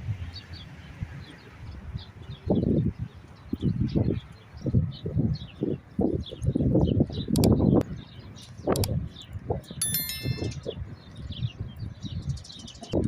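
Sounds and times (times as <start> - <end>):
bright metallic ringing: 9.8 - 10.7.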